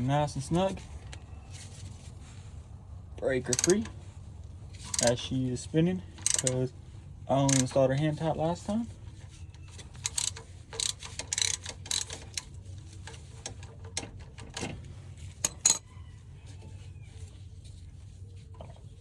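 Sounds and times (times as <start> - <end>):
ratchet clicking: 3.5 - 3.9, 4.8 - 5.2, 6.1 - 6.7, 7.4 - 7.8, 9.6 - 14.7, 15.4 - 15.8.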